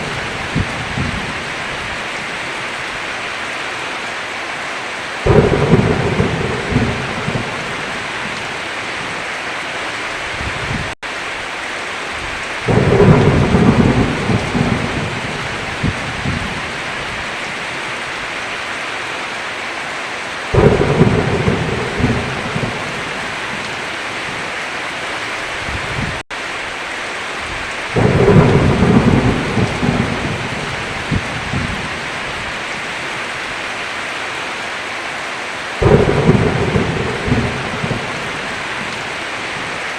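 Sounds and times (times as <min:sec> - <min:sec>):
thunder rumbling: 0:00.0 - 0:02.0, 0:05.2 - 0:09.2, 0:12.2 - 0:17.6, 0:20.5 - 0:24.5, 0:27.5 - 0:32.9, 0:35.8 - 0:39.9
heavy rain on a roof: 0:00.0 - 0:39.9.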